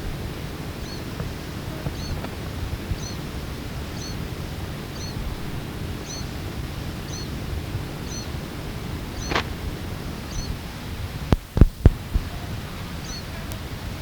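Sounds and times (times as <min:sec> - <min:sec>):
low rumble of wind: 0:00.0 - 0:14.0
tape hiss: 0:00.0 - 0:14.0
fledgling begging call: 0:00.8 - 0:10.6.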